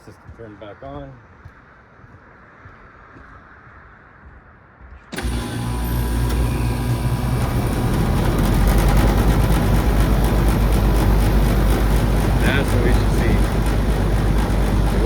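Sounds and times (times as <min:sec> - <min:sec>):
low mechanical hum: 0:05.1 - 0:15.0.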